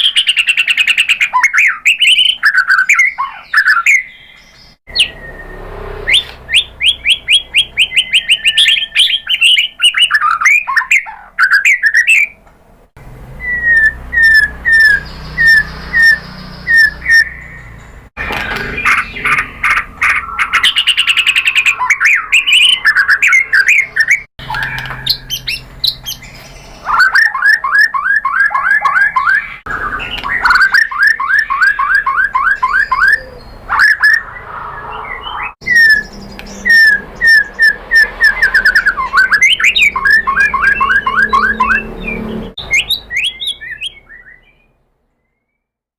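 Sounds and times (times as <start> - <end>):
bird singing whistled notes and trills: 0.0 - 12.4, 13.3 - 45.7.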